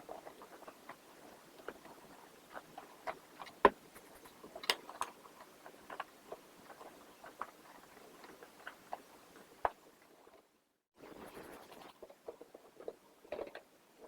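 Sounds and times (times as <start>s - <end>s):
cloth wiping plastic: 11.0s - 12.0s.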